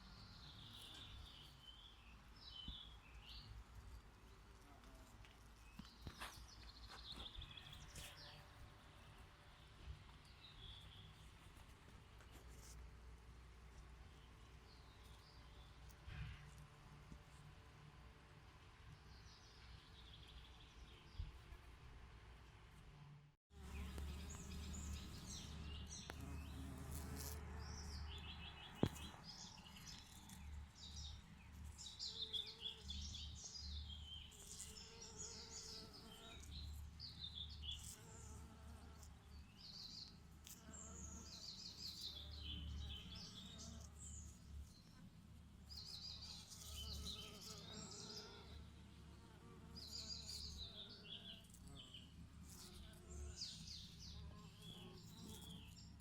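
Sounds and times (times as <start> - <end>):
songbirds chirping and trilling: 0.0 - 4.6, 5.3 - 12.8, 23.6 - 56.0.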